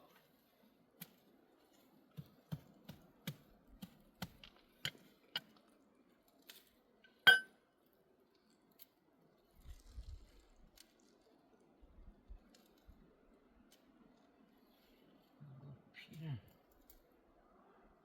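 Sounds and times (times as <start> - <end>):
hard objects knocking and clinking: 7.3 - 7.5
loud ringing clink: 7.3 - 7.5.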